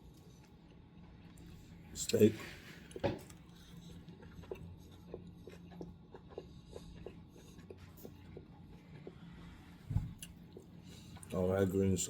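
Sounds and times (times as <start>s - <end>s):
low steady hum: 0.0s - 12.0s
person chewing: 2.8s - 9.3s.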